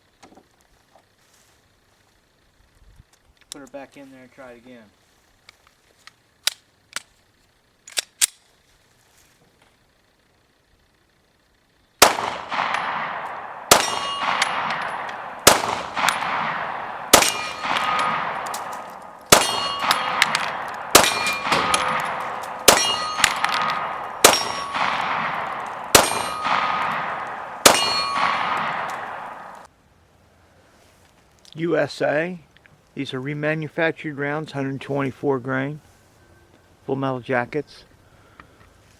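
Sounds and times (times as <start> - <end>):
pistol shots with echo: 12.0 - 29.7.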